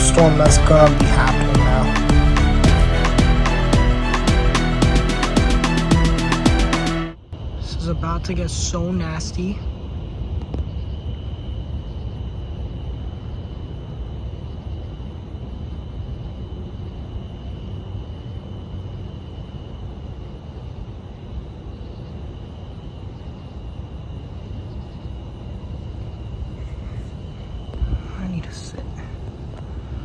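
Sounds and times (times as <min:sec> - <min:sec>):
thin high tone: 0:00.0 - 0:07.2
low outdoor rumble: 0:00.0 - 0:11.6, 0:25.5 - 0:30.0.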